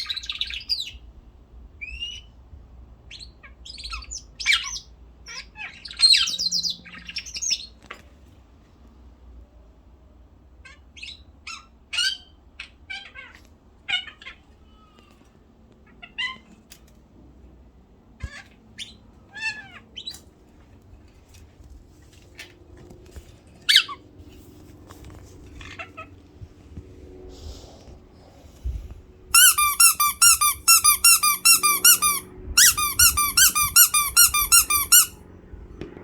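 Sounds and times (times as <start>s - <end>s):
pet birds squawking and chirping: 3.1s - 7.7s, 23.7s - 24.0s, 29.4s - 35.2s.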